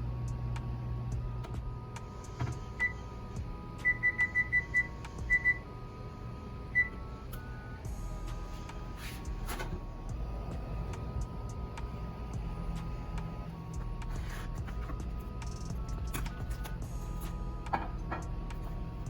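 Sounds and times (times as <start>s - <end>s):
soft background music: 0.0s - 19.0s
short electronic beeps: 3.8s - 5.6s.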